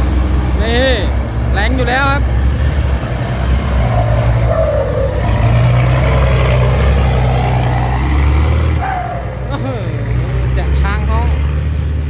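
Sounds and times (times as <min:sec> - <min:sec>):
truck diesel engine under load: 0:00.0 - 0:12.0.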